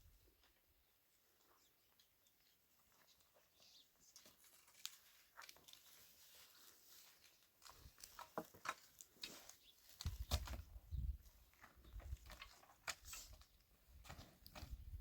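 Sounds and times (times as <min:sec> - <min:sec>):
faint clicks and rustles: 0:00.3 - 0:15.0.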